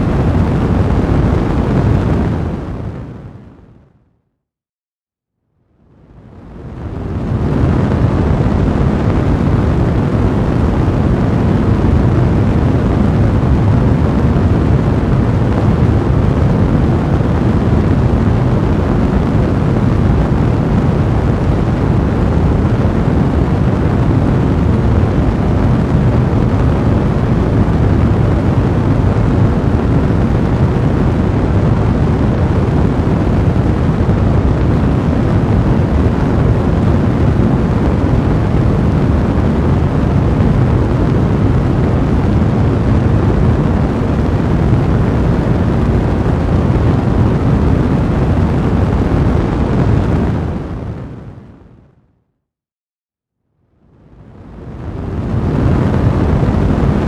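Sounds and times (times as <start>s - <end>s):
fire blazing: 6.3s - 51.2s.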